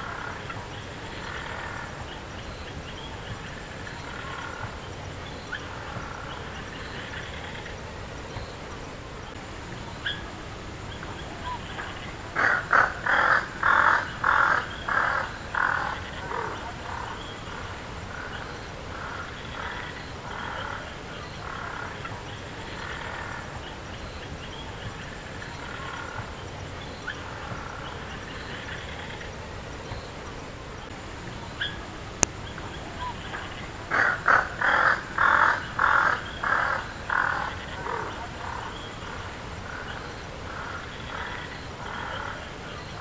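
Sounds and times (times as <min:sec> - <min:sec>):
small birds chirping faintly: 0:00.0 - 0:43.0
bird harsh calls: 0:09.9 - 0:29.3, 0:31.5 - 0:43.0.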